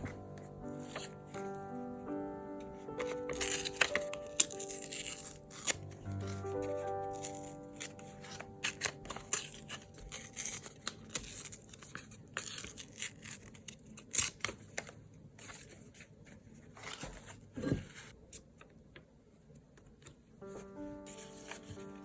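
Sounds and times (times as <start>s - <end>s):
paper rustling and tearing: 0.0s - 1.3s, 3.0s - 18.2s.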